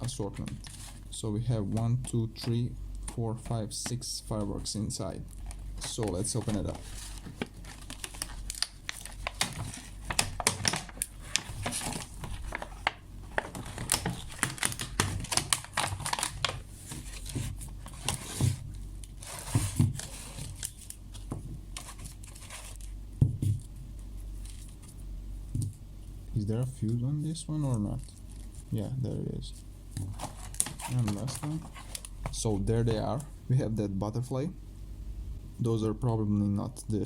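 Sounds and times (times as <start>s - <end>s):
packaging crinkling and tearing: 5.4s - 23.0s, 30.1s - 32.2s.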